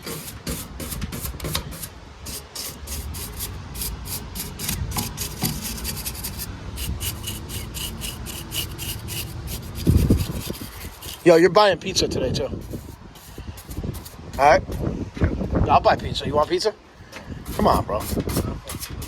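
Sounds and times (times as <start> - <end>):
brush scrubbing metal fins: 0.0 - 11.5, 12.6 - 14.5, 17.4 - 19.0.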